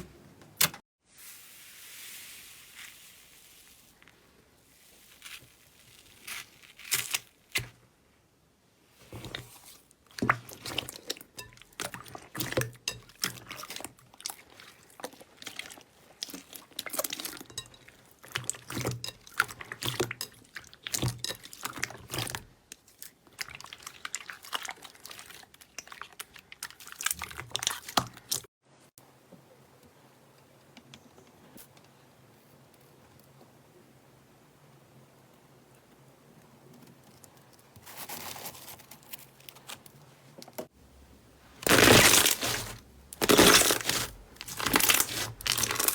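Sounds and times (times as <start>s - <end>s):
slime squelching and crackling: 4.6s - 7.8s, 9.0s - 28.5s, 41.6s - 45.9s.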